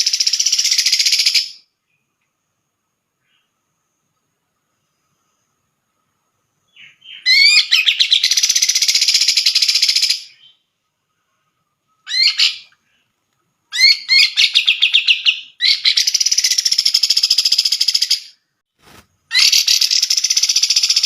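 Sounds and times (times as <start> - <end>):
bird singing rapid notes: 6.7 - 10.7, 13.7 - 18.4, 19.3 - 21.0.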